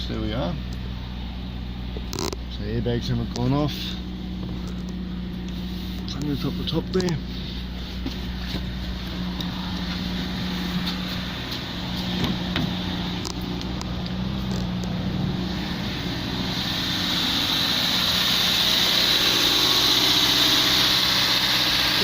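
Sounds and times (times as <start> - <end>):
car engine idling: 0.0 - 22.0
hiss: 15.5 - 22.0.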